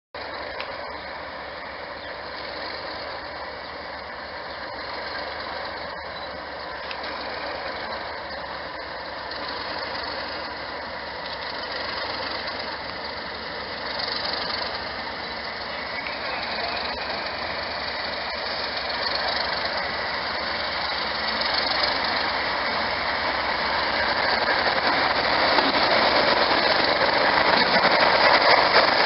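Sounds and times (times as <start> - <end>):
diesel locomotive engine clattering: 0.2 - 29.0.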